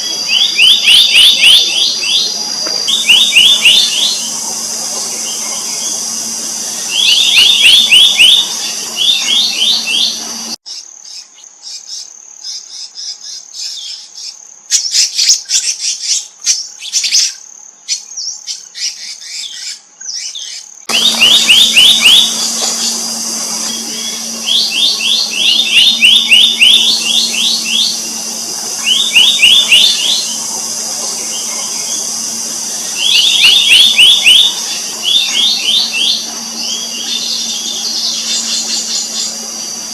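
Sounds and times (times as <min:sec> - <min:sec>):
bird whistled song: 0:00.0 - 0:10.6, 0:16.8 - 0:39.9
high chirps and clicks: 0:00.0 - 0:10.6, 0:20.9 - 0:39.9
low hum: 0:00.0 - 0:10.6, 0:20.9 - 0:39.9
high insect hiss: 0:00.0 - 0:15.5, 0:20.8 - 0:39.9.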